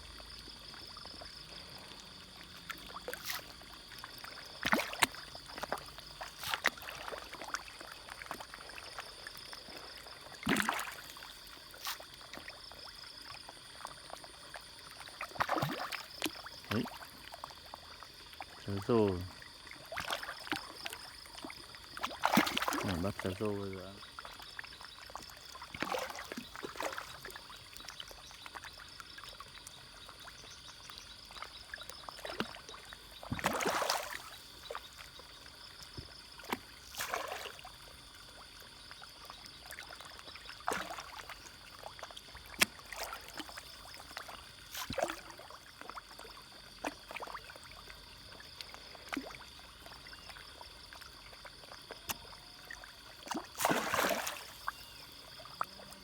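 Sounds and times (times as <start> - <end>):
fish splashing at water surface: 9.6 - 12.5, 15.0 - 17.1, 19.9 - 23.8, 25.1 - 27.4, 32.2 - 34.7, 36.5 - 37.6, 42.4 - 46.0, 52.1 - 55.7.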